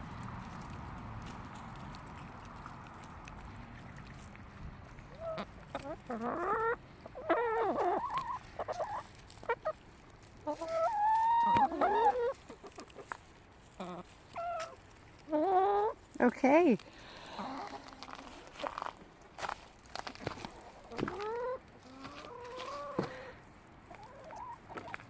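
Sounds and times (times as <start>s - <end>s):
hens squawking and clucking: 0.0s - 16.2s, 16.8s - 25.0s.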